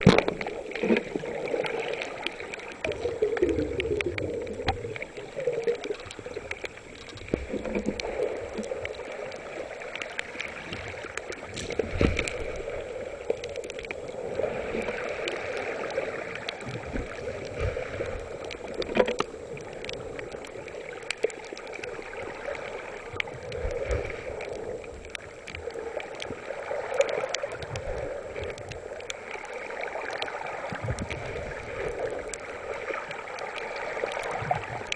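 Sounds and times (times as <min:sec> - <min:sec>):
underwater rushing and gurgling water: 0:00.0 - 0:34.9
small clicks: 0:15.2 - 0:29.5.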